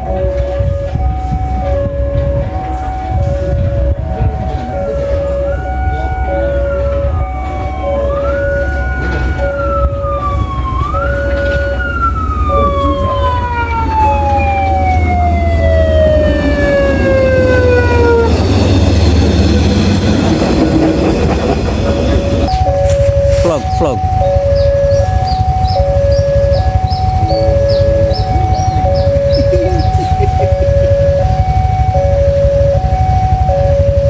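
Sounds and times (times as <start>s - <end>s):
approaching train: 0.0s - 34.0s
deep steady rumble: 0.0s - 34.0s
siren wailing: 0.0s - 34.0s.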